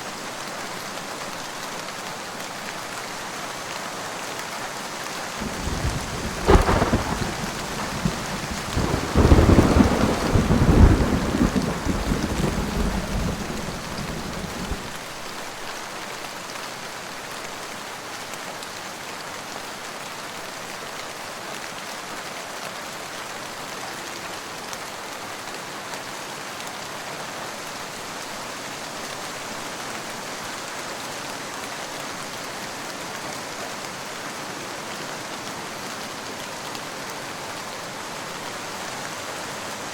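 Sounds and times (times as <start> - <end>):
steady rain falling: 0.0 - 39.9
thunderclap and rolling thunder: 5.4 - 15.0.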